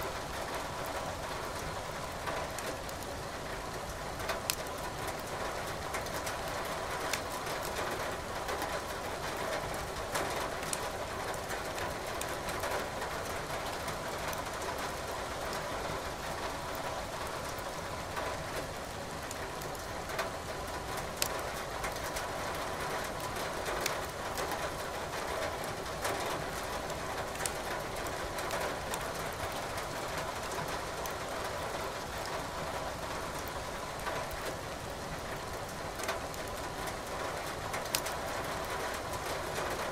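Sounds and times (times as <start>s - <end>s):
steady rain: 0.0s - 39.9s
firewood crackling: 4.5s - 5.3s, 37.8s - 38.1s.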